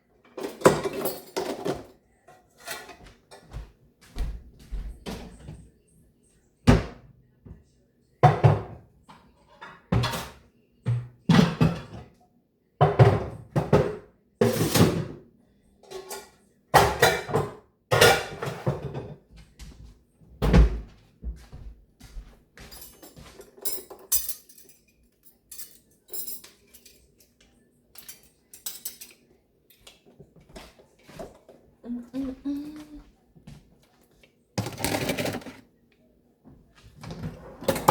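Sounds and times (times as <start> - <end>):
dishes and pans clanking: 0.3 - 3.5, 8.2 - 12.2, 12.8 - 15.2, 15.8 - 19.2, 34.6 - 35.6.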